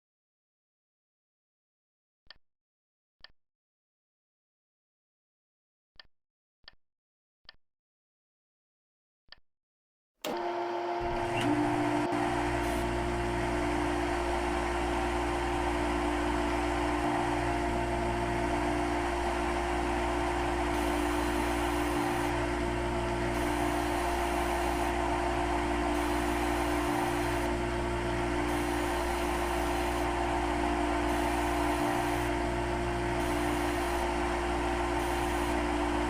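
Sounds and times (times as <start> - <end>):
machine humming and whining: 10.3 - 36.0.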